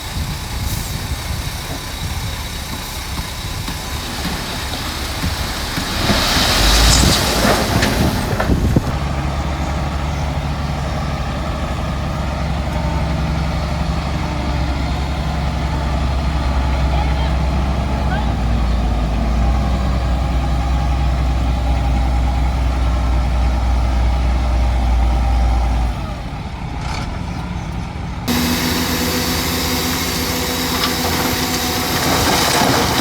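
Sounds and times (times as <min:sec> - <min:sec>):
diesel construction machinery running: 0:00.0 - 0:33.0
strong hiss: 0:03.0 - 0:09.0.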